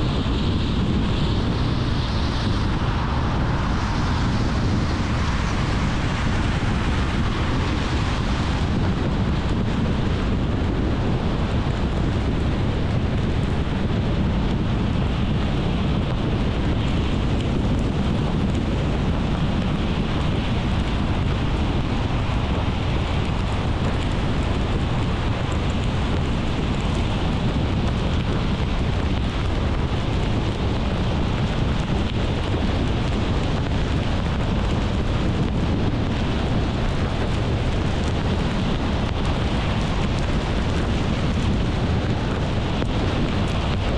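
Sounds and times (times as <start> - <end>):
car road and wind noise: 0.0 - 43.9.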